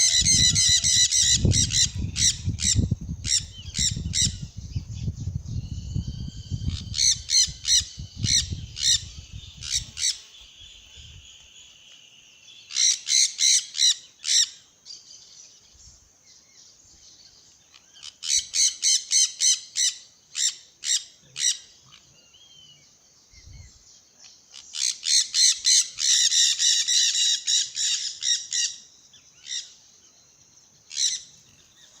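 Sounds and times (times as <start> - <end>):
birds squawking harshly: 0.0 - 4.5, 12.7 - 14.6, 17.8 - 22.1, 24.6 - 29.8, 30.9 - 31.5.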